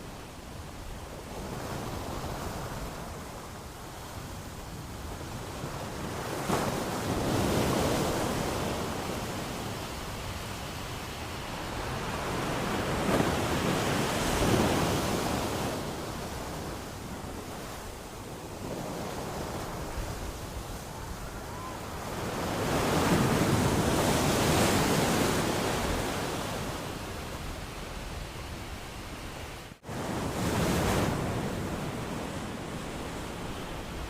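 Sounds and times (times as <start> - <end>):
wind: 0.0 - 34.0
ocean waves breaking: 11.0 - 34.0.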